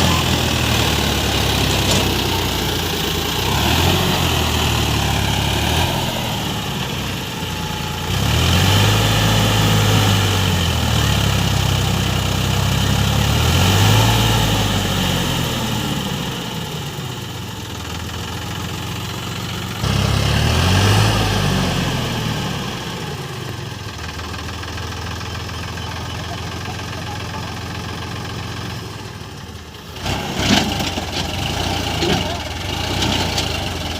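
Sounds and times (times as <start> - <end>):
diesel engine revving: 0.0 - 33.9.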